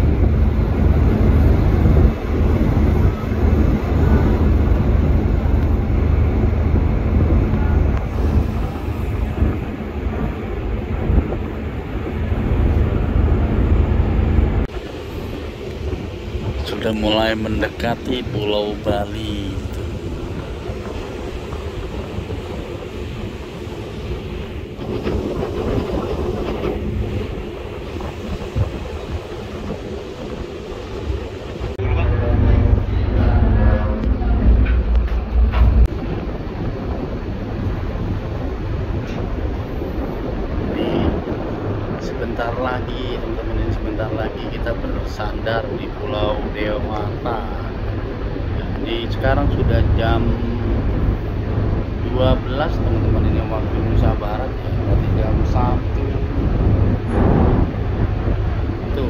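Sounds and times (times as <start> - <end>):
ship engines droning: 0.0 - 59.0
wind buffeting microphone: 0.0 - 59.0.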